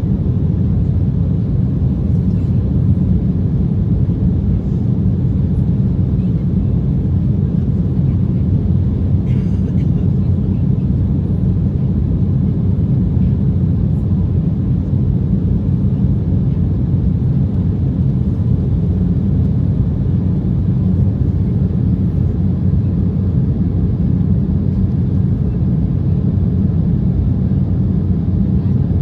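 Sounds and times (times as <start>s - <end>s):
airliner cabin low rumble: 0.0s - 29.0s.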